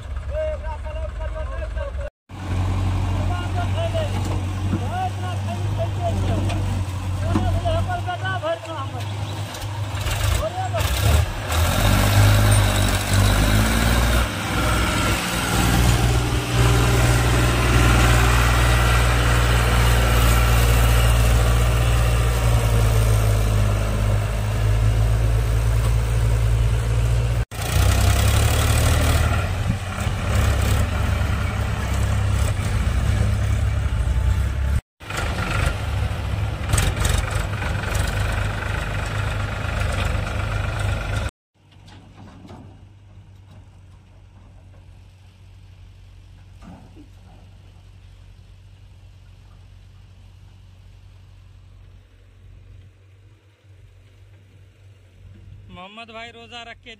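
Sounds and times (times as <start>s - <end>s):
heavy diesel engine running: 0.0s - 9.0s, 9.6s - 41.3s.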